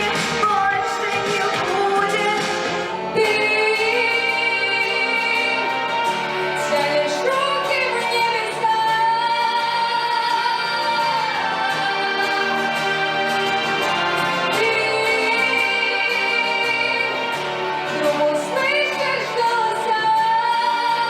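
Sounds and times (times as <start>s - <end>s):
musical accompaniment: 0.0s - 21.0s
woman singing: 0.0s - 21.0s.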